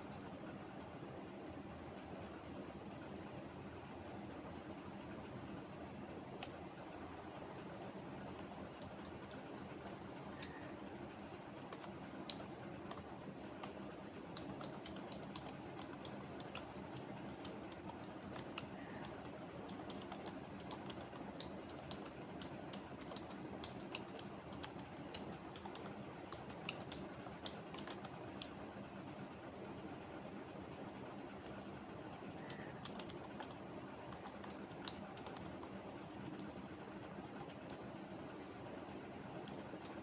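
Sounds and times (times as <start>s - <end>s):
low background hum: 0.0s - 40.0s
computer keyboard typing: 8.2s - 29.3s, 31.3s - 38.2s, 39.2s - 40.0s.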